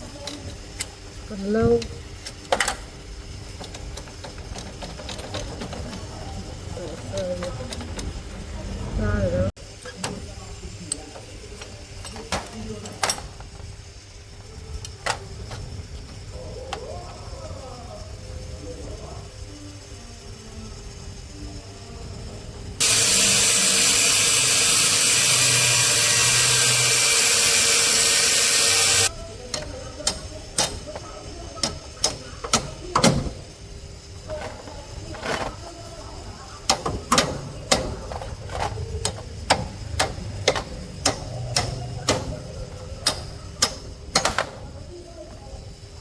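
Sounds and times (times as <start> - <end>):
workshop tool hissing: 22.8 - 44.9
metallic clicks and taps: 29.5 - 31.0, 38.5 - 44.6.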